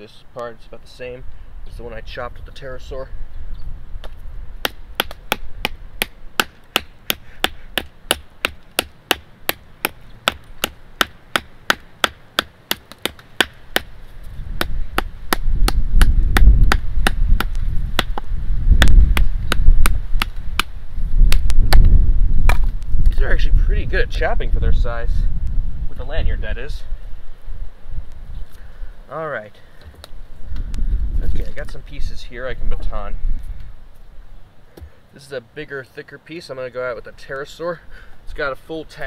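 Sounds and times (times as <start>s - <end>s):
knife chopping wood: 4.0s - 13.9s, 14.6s - 21.9s, 22.5s - 22.8s.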